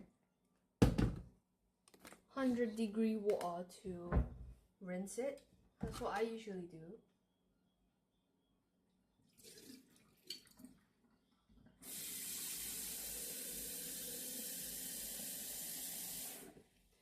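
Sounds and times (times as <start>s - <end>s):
tap water rinsing a glass: 9.3s - 10.8s, 11.8s - 16.7s.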